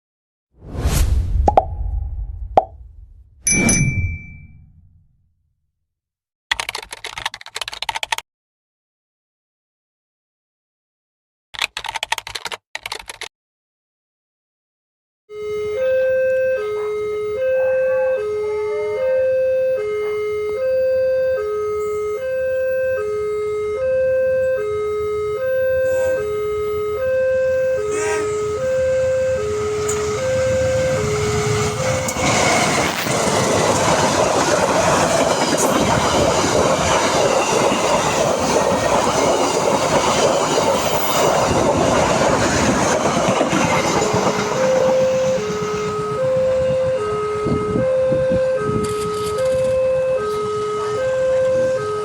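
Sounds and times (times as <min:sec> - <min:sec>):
two-note level-crossing warning signal: 0:15.3 - 0:32.9, 0:44.0 - 0:52.0
train wheel-and-rail noise: 0:27.6 - 0:51.8.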